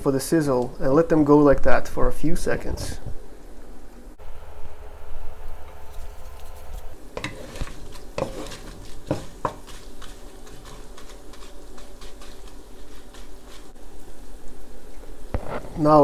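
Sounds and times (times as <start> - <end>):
utensil scraping and clinking wok: 5.9 - 13.8
food sizzling in oil: 6.0 - 16.0.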